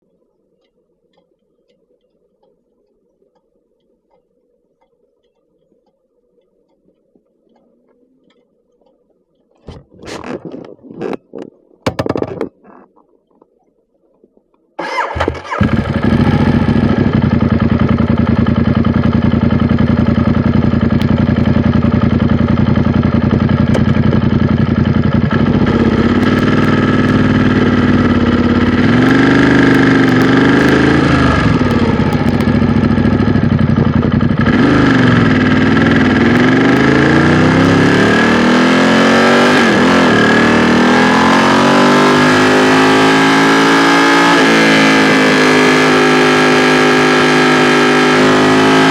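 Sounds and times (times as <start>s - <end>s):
motorcycle engine starting and idling: 14.8s - 38.5s
motorcycle accelerating: 14.8s - 48.9s
motorcycle throttle blips: 14.8s - 48.9s.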